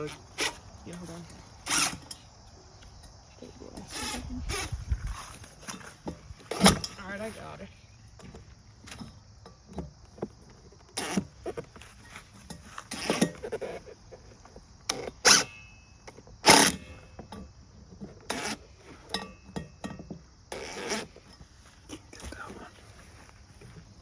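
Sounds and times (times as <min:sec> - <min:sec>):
metal clanks and scrapes: 0:05.0 - 0:07.2, 0:11.1 - 0:13.6, 0:16.5 - 0:22.1.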